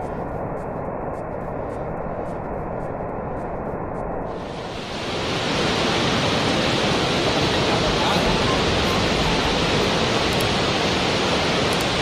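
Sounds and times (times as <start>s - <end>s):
falling water rushing: 4.3s - 12.0s.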